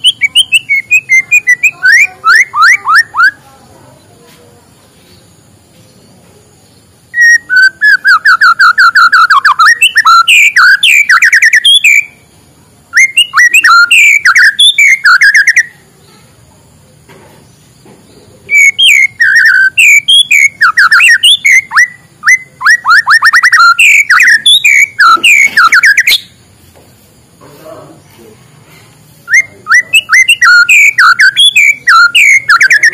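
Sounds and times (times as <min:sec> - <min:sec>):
bird singing whistled notes: 0:00.0 - 0:03.6, 0:05.9 - 0:12.3, 0:12.9 - 0:16.2, 0:17.5 - 0:26.4, 0:29.2 - 0:32.9.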